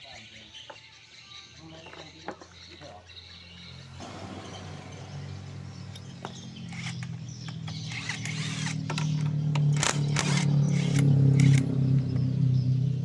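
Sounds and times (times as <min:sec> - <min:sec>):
metal clicks and clanks: 0:05.9 - 0:12.3.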